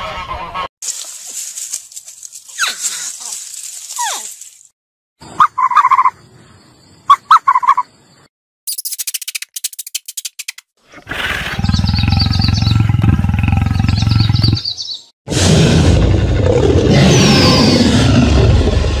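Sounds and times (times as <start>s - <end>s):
birds chirping: 11.2s - 15.1s
lion growling: 15.3s - 19.0s.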